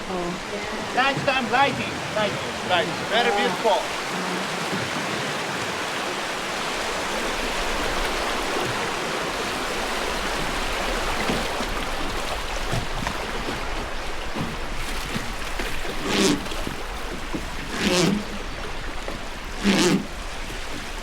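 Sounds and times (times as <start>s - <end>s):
rushing river water: 0.0s - 21.0s.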